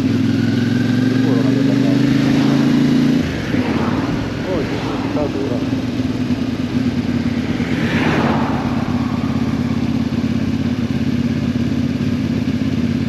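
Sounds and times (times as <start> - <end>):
motorcycle engine running: 0.0 - 13.0
road and wind noise: 0.0 - 13.0
short rushing swell: 2.0 - 11.3.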